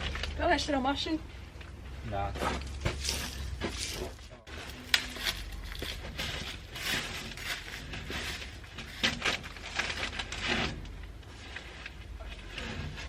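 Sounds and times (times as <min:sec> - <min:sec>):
rustling and scraping of objects: 0:00.0 - 0:13.0.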